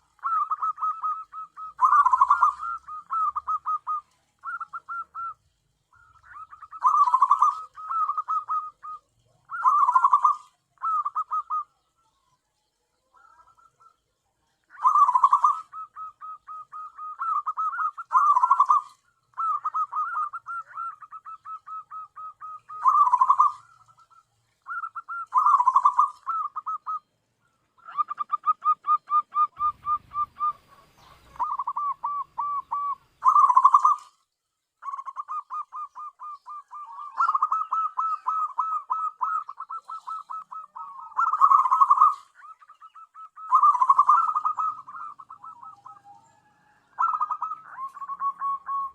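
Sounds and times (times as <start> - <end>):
dove cooing: 0.0 - 12.2, 13.0 - 34.2, 34.8 - 48.9.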